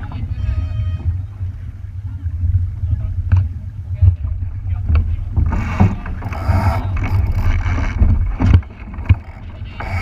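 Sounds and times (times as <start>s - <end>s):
wind on microphone: 0.0s - 10.0s
water splashing against hull: 3.4s - 10.0s.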